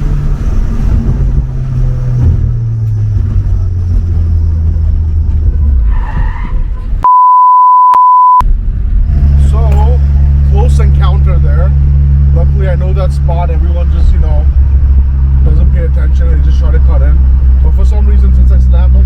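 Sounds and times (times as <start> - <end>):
car engine slowing: 0.0 - 7.0, 8.5 - 19.0
road noise: 0.0 - 7.2, 8.4 - 19.0
censor bleep: 7.0 - 8.4.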